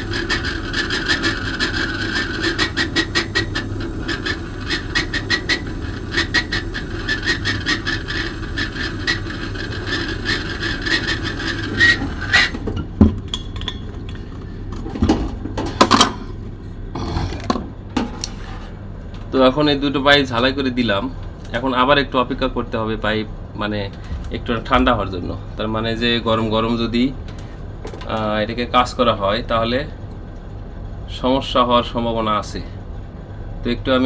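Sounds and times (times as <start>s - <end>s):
gas torch burning with crackle: 0.0s - 12.8s.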